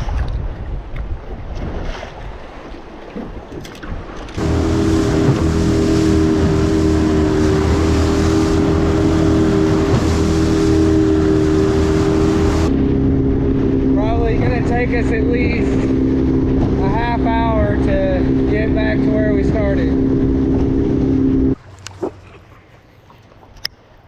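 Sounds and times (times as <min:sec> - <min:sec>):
wind on microphone: 0:00.0 - 0:21.6
outboard motor running: 0:04.4 - 0:23.5.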